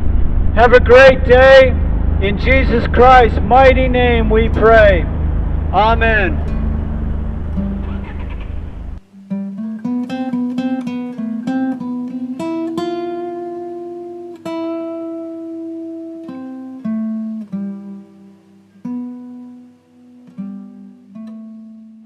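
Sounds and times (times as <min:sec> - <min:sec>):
outdoor street noise: 0:00.0 - 0:09.5
acoustic guitar plucking: 0:01.8 - 0:22.0.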